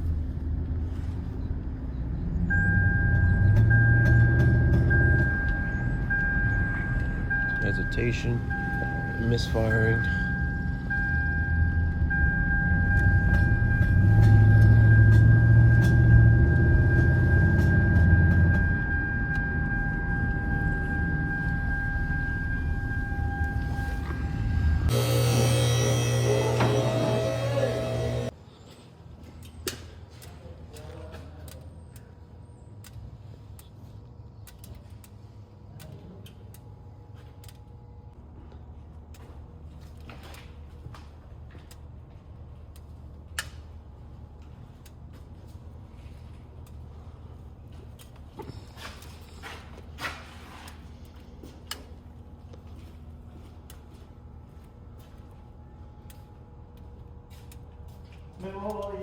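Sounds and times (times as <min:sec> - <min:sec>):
high electronic tone: 0:02.5 - 0:28.3
car engine idling: 0:03.1 - 0:28.3.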